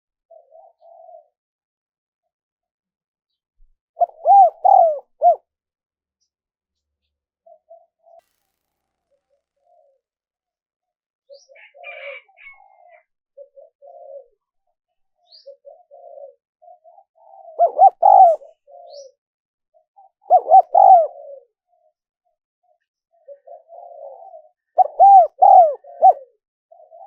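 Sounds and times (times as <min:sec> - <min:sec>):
dove cooing: 0:00.3 - 0:01.4, 0:04.0 - 0:05.5, 0:11.3 - 0:14.5, 0:15.2 - 0:19.2, 0:19.8 - 0:21.9, 0:23.1 - 0:27.0.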